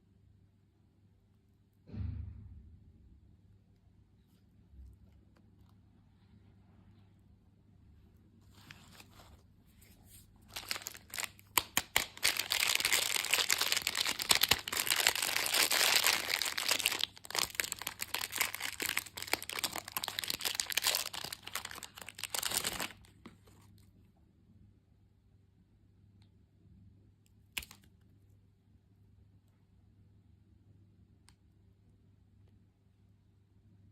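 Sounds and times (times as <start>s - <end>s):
plastic packaging crinkling: 10.4s - 23.6s.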